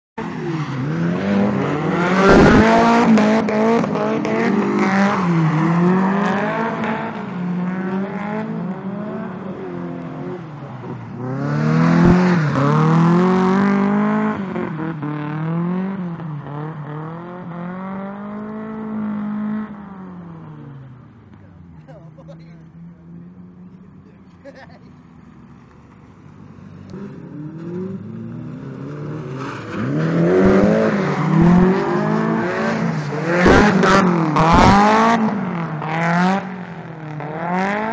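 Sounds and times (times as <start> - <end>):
car engine revving hard: 0.8 - 10.4, 26.9 - 37.9.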